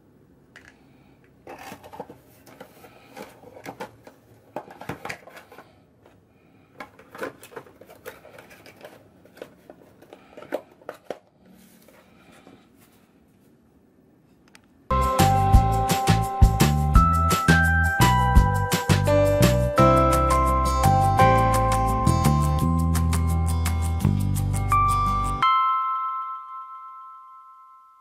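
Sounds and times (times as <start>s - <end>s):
cardboard packaging rustling: 1.4s - 6.2s, 6.8s - 13.1s.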